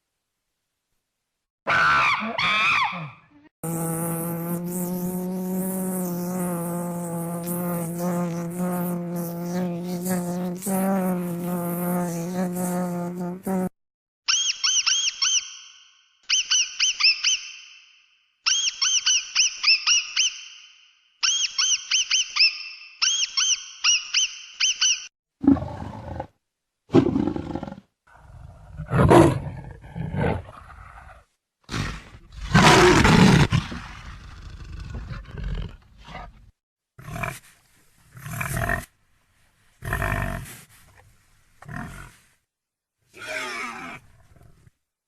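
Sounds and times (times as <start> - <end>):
animal roaring: 25.4 - 26.4.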